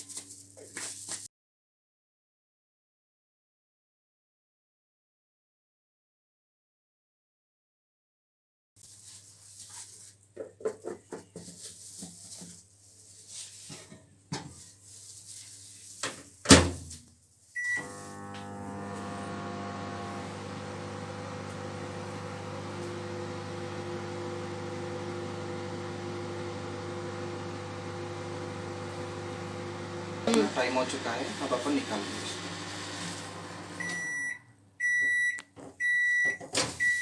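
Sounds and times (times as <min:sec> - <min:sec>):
microwave oven humming: 0:17.6 - 0:34.4
microwave beep: 0:17.6 - 0:37.0.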